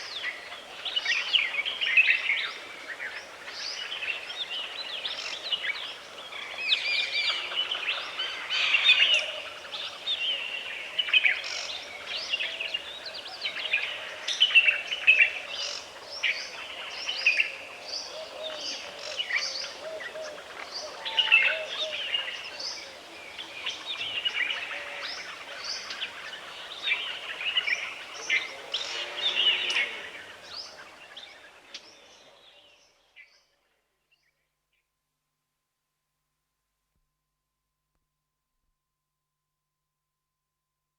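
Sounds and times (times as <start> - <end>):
birds chirping and calling: 7.2 - 32.1.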